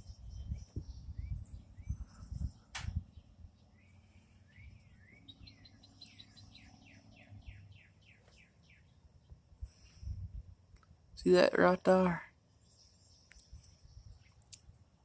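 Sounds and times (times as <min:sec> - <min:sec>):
songbird singing: 0:00.0 - 0:15.0
sharp click: 0:02.7 - 0:03.0.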